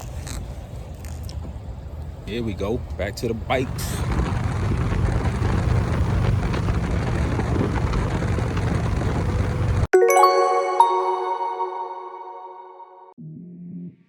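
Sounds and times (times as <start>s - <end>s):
motorcycle engine rumble: 3.8s - 9.9s
wind noise: 3.8s - 9.9s
chiming music: 9.9s - 13.2s.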